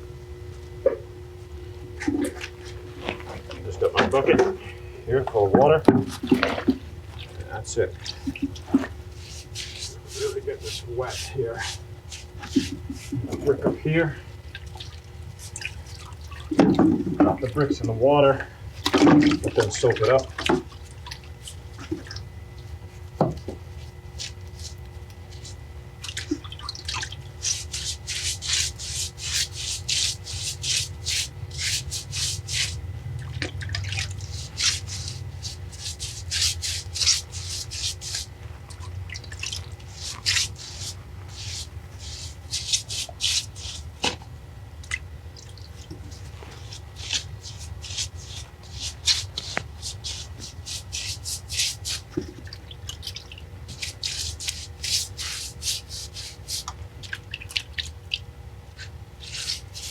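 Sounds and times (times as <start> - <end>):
low steady hum: 0.0 - 59.9
water dripping: 14.5 - 16.8, 25.0 - 27.8, 33.2 - 36.2, 37.0 - 43.4, 44.8 - 46.1, 52.1 - 54.5, 56.7 - 58.3.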